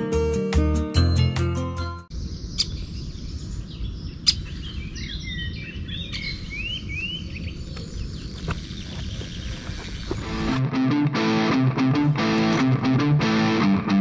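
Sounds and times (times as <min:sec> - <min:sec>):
birds singing: 0:02.1 - 0:10.6.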